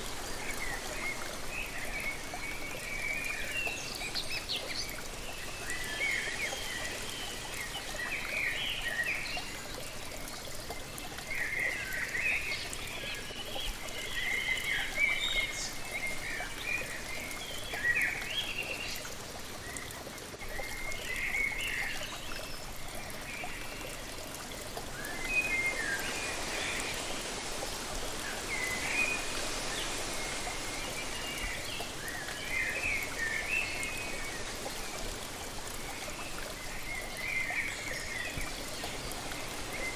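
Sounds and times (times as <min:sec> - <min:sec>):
songbirds chirping: 0:00.0 - 0:39.9
waterfall rushing: 0:24.8 - 0:37.2.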